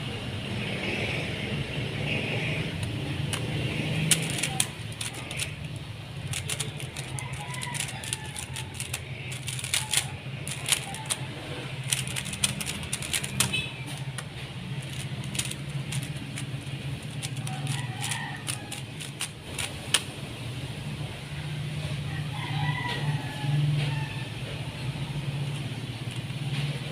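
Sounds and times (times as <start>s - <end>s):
speed cube plastic clicking: 2.6s - 20.2s.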